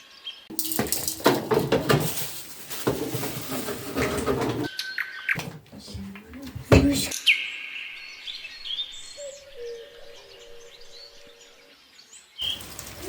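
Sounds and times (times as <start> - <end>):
birds chirping: 4.7 - 13.0.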